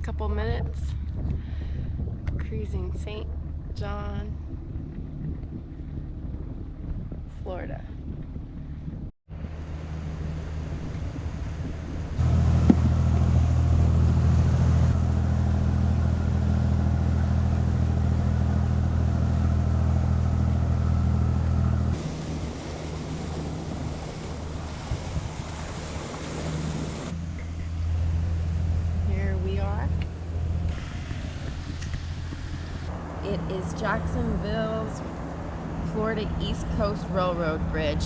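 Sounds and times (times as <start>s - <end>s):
boat engine drone: 0.0s - 38.0s
wind and water hiss: 9.3s - 38.0s.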